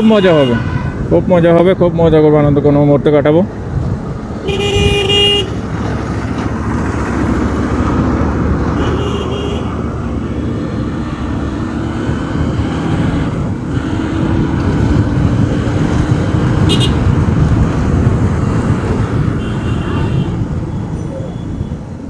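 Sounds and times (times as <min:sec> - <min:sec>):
vehicle horn honking: 0:00.0 - 0:01.0, 0:04.4 - 0:05.6, 0:08.8 - 0:09.7, 0:16.7 - 0:17.0
motorcycle engine in traffic: 0:00.0 - 0:22.0.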